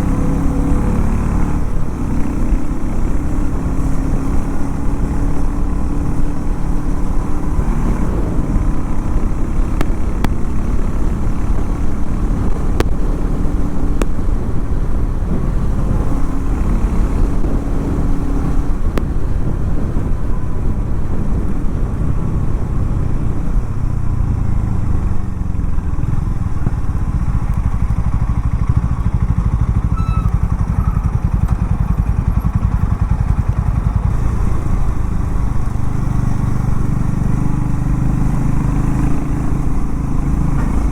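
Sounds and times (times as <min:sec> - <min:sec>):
motorcycle engine rumbling: 0:00.0 - 0:40.9.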